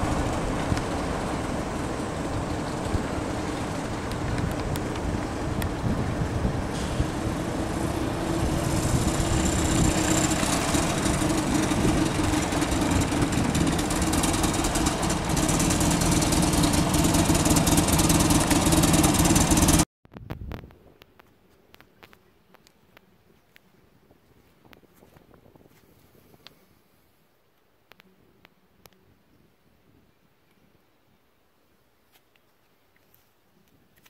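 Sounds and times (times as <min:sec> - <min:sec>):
motorcycle engine running: 0:00.0 - 0:19.8.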